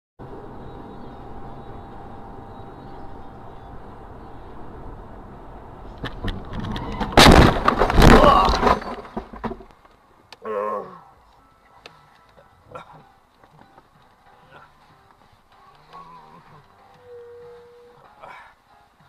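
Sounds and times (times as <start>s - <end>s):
road and engine noise: 0.2s - 19.0s
loud car crash impact: 6.9s - 9.7s.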